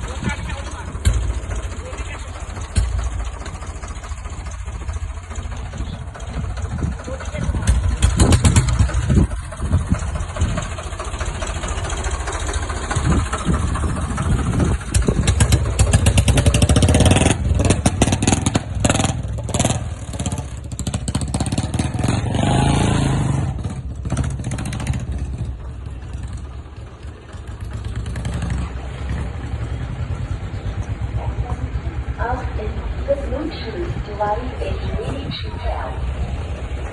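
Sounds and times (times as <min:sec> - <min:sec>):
rattling clatter: 0:00.0 - 0:22.5, 0:23.3 - 0:32.6
vehicle engine revving: 0:00.0 - 0:32.9.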